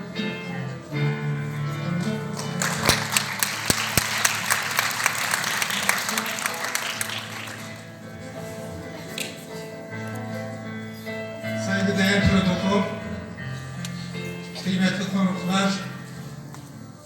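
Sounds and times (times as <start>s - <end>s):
audience applauding: 2.4s - 8.1s.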